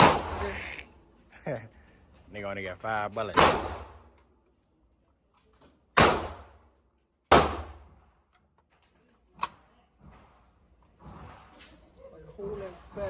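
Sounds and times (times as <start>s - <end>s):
shotgun shots echoing: 0.0s - 0.4s, 3.4s - 4.1s, 6.0s - 6.6s, 7.3s - 7.9s.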